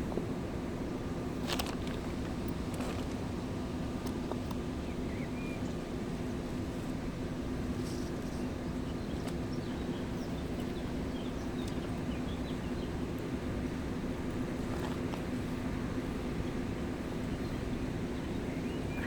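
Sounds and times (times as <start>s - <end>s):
small birds chirping: 4.7s - 6.4s, 7.8s - 13.3s, 16.8s - 19.0s.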